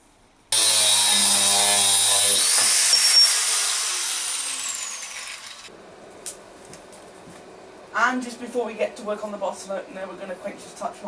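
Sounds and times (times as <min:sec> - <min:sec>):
power tool cutting steel bar: 0:00.5 - 0:05.7.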